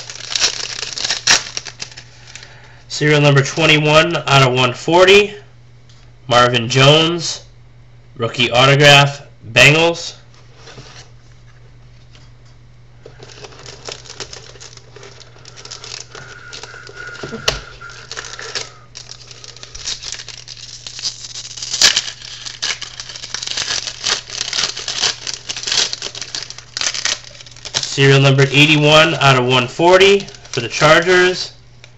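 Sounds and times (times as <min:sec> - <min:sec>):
card pack wrapper crinkling: 0:00.0 - 0:02.6, 0:13.1 - 0:31.6
steady low hum: 0:00.0 - 0:31.9.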